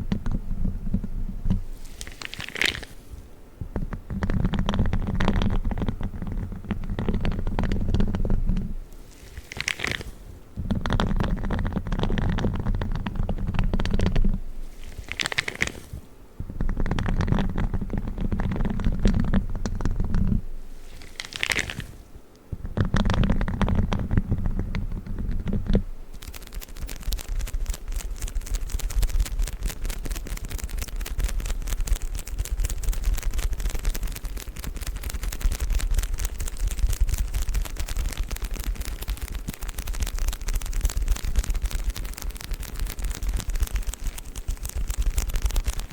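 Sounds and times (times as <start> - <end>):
gloves rubbing: 0.0 - 45.9
tissue paper crackling: 26.1 - 45.9.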